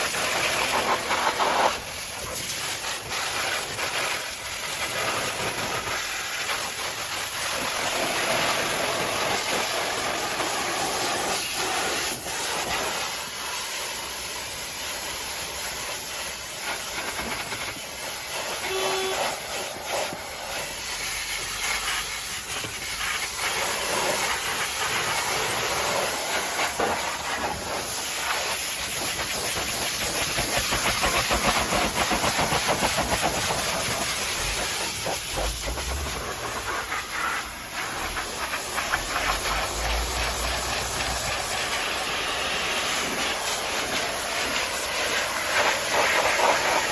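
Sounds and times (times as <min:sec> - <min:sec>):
pressure washer spraying water: 0:00.0 - 0:46.9.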